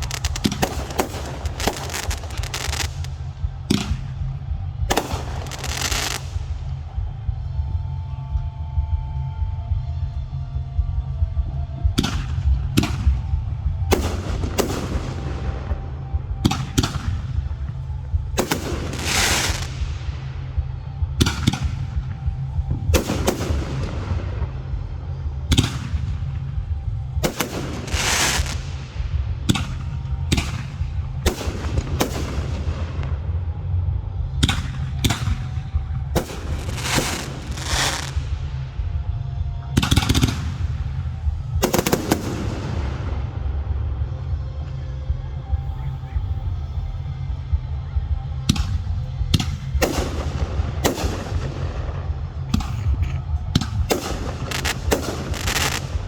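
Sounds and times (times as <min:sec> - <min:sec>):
firework crackle: 0:00.0 - 0:04.1, 0:04.9 - 0:06.6, 0:18.4 - 0:20.3, 0:27.3 - 0:29.1, 0:36.2 - 0:38.6, 0:53.9 - 0:56.0
low rumble: 0:00.0 - 0:56.0
firework shells booming: 0:53.6 - 0:56.0.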